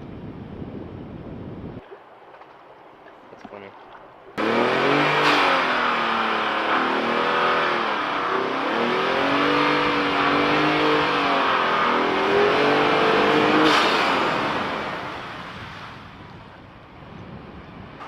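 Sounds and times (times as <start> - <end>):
truck engine accelerating: 4.4 - 16.3.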